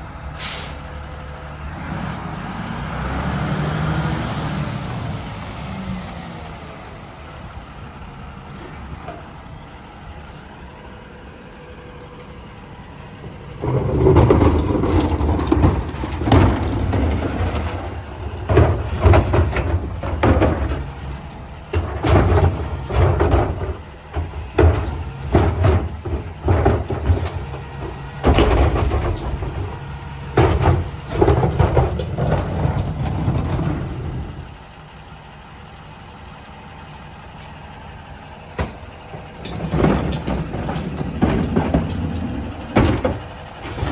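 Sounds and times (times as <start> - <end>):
garbage truck engine idling: 4.1 - 43.9
metal clanks and bangs: 13.2 - 34.6, 38.6 - 43.9.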